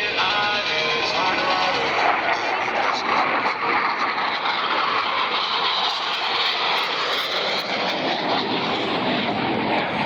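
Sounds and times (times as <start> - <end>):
jet aircraft passing overhead: 0.0 - 10.0.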